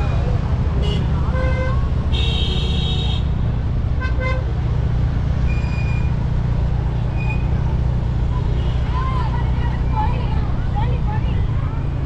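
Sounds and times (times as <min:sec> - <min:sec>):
road traffic rumble: 0:00.0 - 0:12.0
vehicle horns honking: 0:00.8 - 0:03.4.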